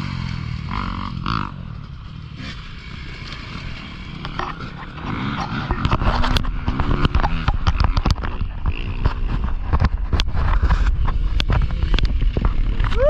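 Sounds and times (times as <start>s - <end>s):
dirt bike engine revving: 0.0s - 13.0s
sharp clicks and knocks: 4.1s - 13.0s.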